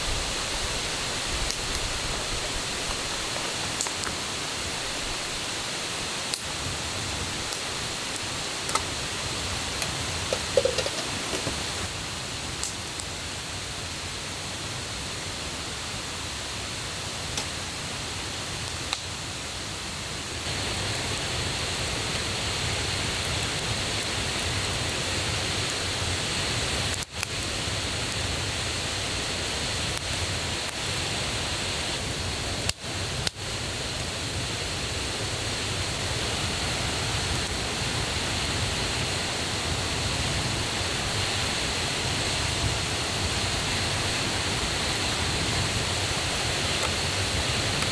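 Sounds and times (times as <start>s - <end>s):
river and waterfall rushing: 0.0s - 12.2s, 33.5s - 47.9s.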